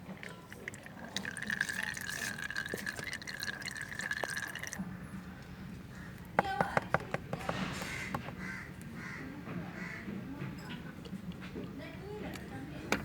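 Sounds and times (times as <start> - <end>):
oil pouring into a container: 0.0 - 4.8.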